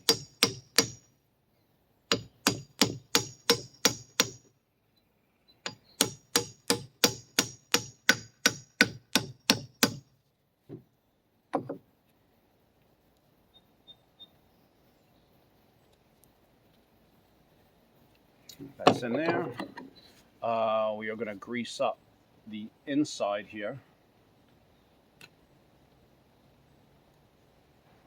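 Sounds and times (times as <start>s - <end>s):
hammer tapping on metal: 0.0s - 1.0s, 2.1s - 4.4s, 5.7s - 10.0s
soft knocks: 11.5s - 11.8s.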